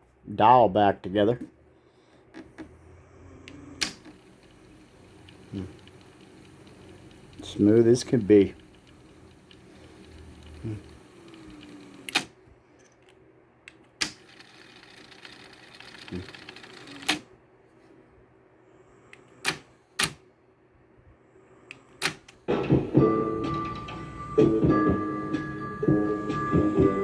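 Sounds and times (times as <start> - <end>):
cassette deck mechanical clicks: 3.8 - 12.3
tape mechanism running: 3.8 - 12.3, 14.0 - 17.2
music from cassette tape: 3.9 - 12.2, 22.5 - 27.0.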